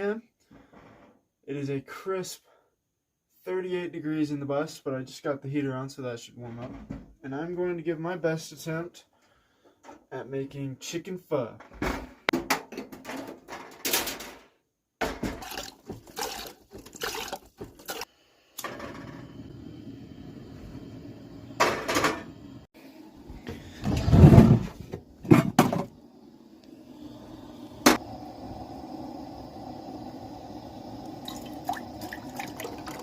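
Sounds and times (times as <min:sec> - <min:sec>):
low hum: 0:18.6 - 0:33.0
loud thump: 0:23.8 - 0:25.9.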